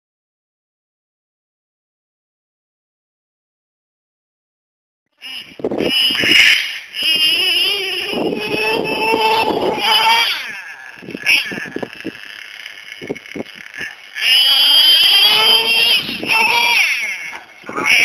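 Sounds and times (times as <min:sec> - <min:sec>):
nitro engine revving whine: 0:05.2 - 0:18.0.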